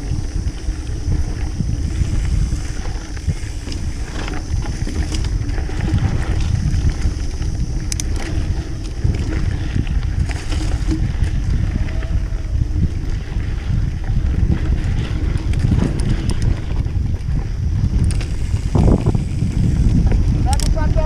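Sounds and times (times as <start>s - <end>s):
bike ride rumble: 0.0s - 21.0s
wind buffeting: 0.0s - 21.0s
small clicks and rattles: 2.7s - 11.4s, 15.0s - 17.3s, 18.0s - 21.0s.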